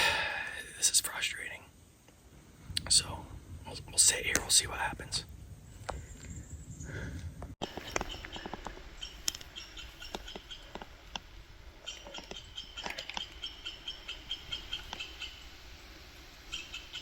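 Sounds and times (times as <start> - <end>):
sharp clicks and ticks: 7.4 - 13.5
small animal chattering: 7.6 - 15.7, 16.4 - 17.0.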